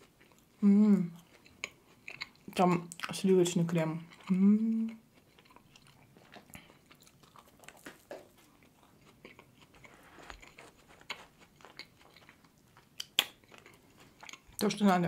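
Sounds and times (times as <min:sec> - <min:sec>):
chewing soft food: 0:00.0 - 0:14.9
wet mouth clicks: 0:13.0 - 0:13.4.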